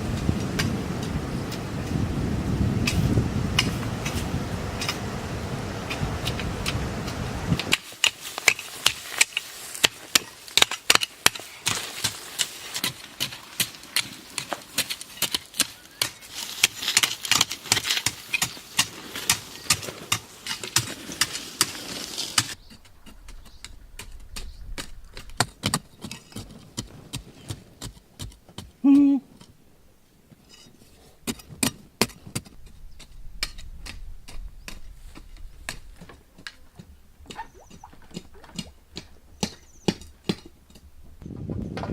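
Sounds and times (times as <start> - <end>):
tools chopping bamboo: 5.9 - 21.7, 35.7 - 41.0.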